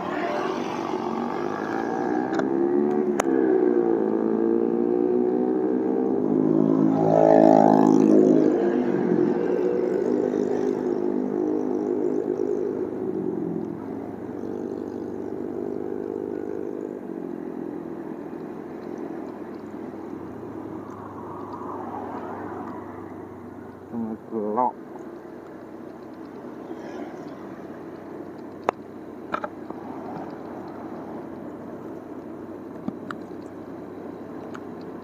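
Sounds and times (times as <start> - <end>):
wind or road noise: 0.0 - 35.0
motorcycle engine running: 6.7 - 21.5.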